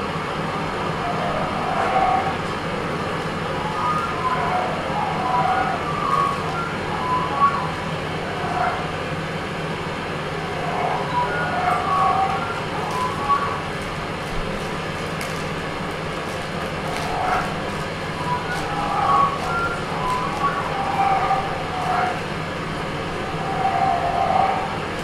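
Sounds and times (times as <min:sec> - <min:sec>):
short wavering tones: 0:00.0 - 0:14.2, 0:16.7 - 0:25.0
low drone: 0:00.0 - 0:25.0.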